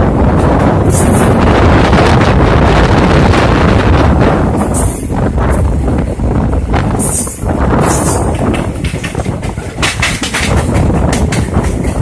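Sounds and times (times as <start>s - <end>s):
train wheels rumbling on rail: 0.0s - 12.0s
rapid clicking clatter over track: 7.2s - 12.0s.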